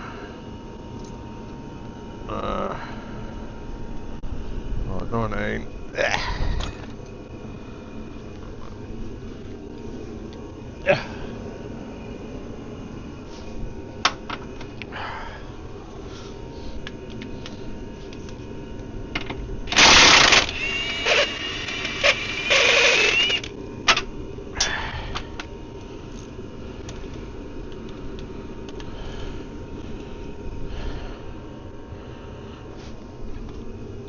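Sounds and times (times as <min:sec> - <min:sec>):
loud harsh rattling bursts: 0:19.7 - 0:23.5.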